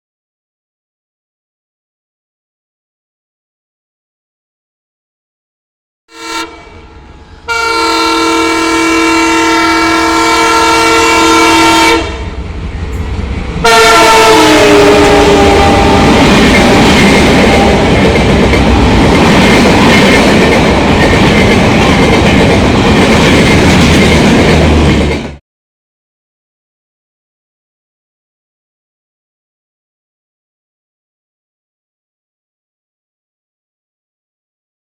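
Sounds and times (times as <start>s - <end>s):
train horn blast: 6.1s - 12.4s, 13.6s - 19.1s
passing train clatter and rumble: 6.2s - 25.4s.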